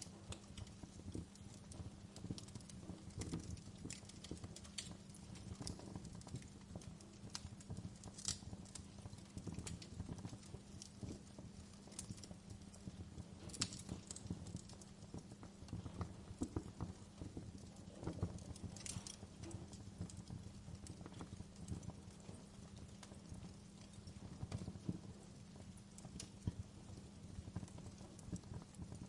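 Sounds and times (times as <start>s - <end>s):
fire crackling and popping: 0.0s - 29.0s.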